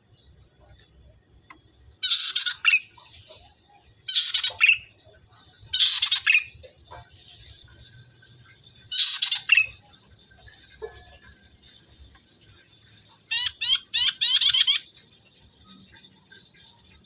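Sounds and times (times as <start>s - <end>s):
buzzy high bird calls: 1.9s - 17.0s.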